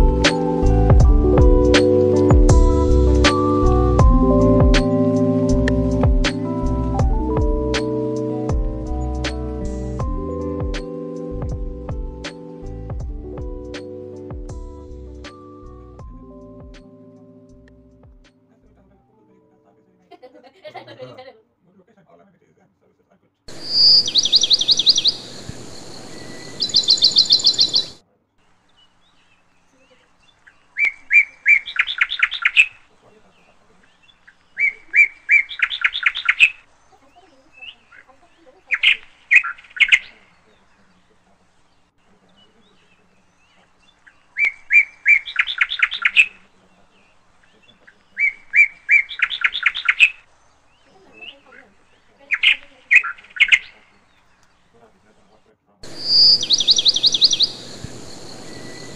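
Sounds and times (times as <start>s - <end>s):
high pulsed chirping: 0.0s - 18.5s, 23.5s - 28.0s, 55.8s - 58.9s
bird calling: 23.5s - 28.0s, 28.6s - 58.9s.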